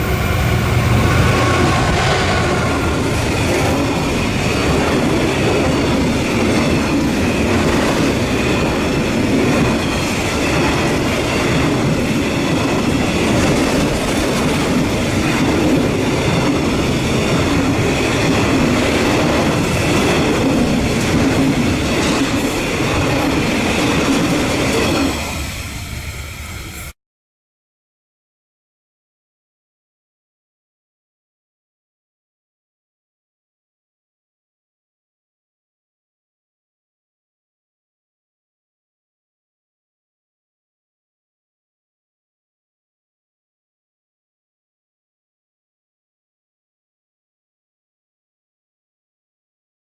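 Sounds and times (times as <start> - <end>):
freight train wheels on rail: 0.0 - 27.0.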